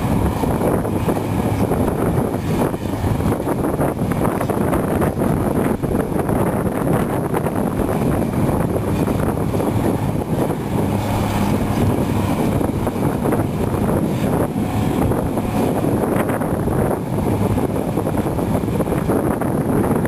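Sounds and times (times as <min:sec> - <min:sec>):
excavator diesel engine rumbling: 0:00.0 - 0:20.0
wind buffeting microphone: 0:00.0 - 0:20.0.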